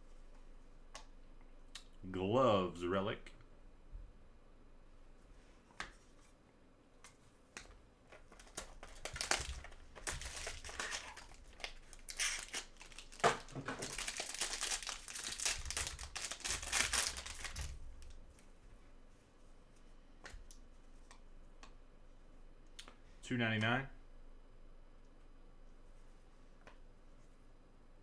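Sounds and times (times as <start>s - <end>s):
card pack wrapper crinkling: 8.2s - 18.2s.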